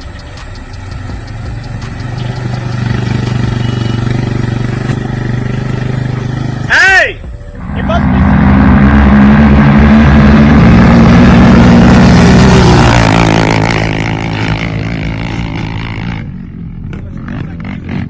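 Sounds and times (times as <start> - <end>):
scattered knocks: 0.0 - 3.8
off-road vehicle engine revving: 0.0 - 18.0.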